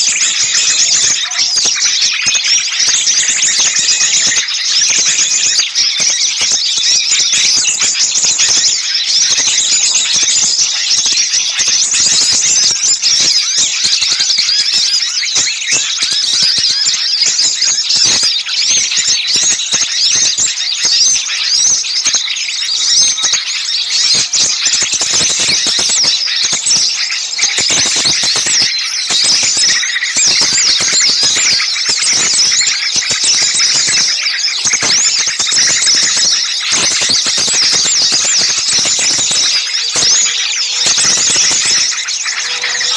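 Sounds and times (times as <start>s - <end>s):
songbirds scolding and alarm calls: 0.0s - 42.9s.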